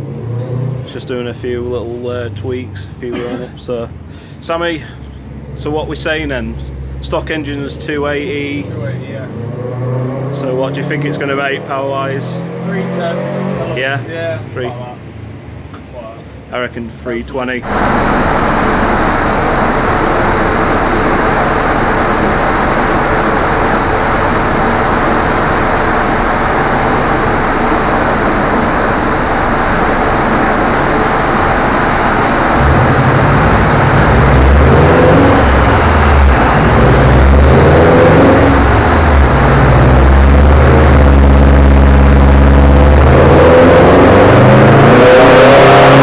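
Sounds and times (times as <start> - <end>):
turbocharged car engine running: 10.1 - 46.0
steady loud rushing noise: 17.2 - 46.0.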